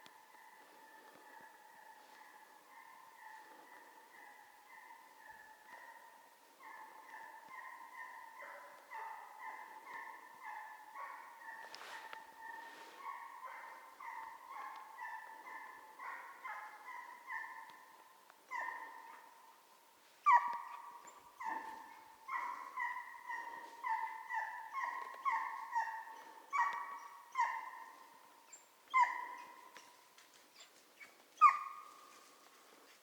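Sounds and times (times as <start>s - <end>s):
dog baying: 21.4s - 28.1s.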